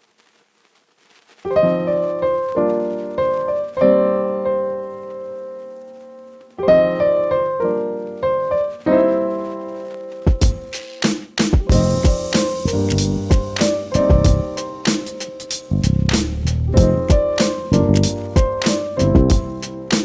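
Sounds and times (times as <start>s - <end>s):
piano chords: 1.5s - 20.0s.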